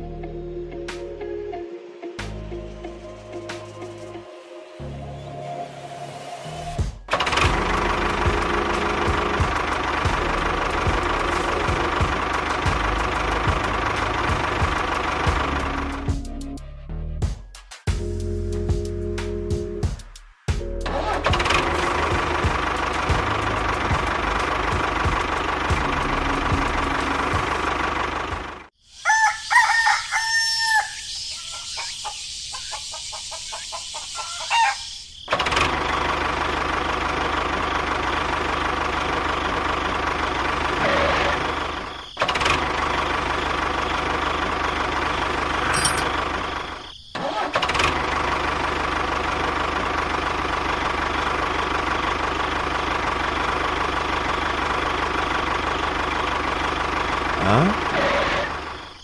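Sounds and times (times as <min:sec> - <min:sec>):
rooster crowing: 0:28.9 - 0:32.2, 0:34.0 - 0:35.0.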